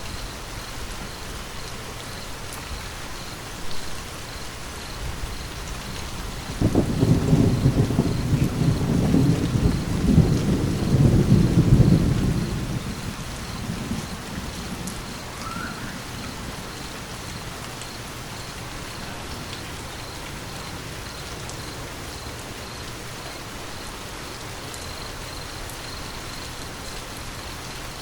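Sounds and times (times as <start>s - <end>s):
steady rain hiss: 0.0s - 28.0s
thunder rumbling: 5.1s - 22.3s.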